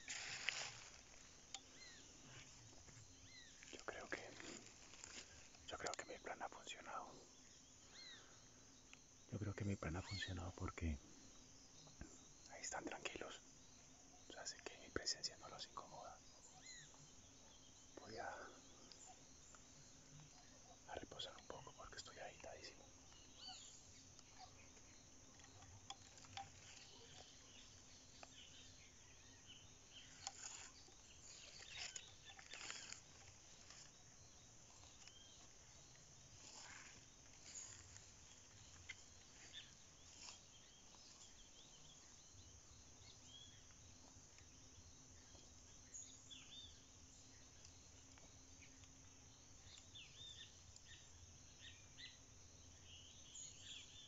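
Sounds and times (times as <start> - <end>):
soft rustles and clicks: 0.0 - 6.0, 30.0 - 41.4
small birds chirping: 0.0 - 54.0.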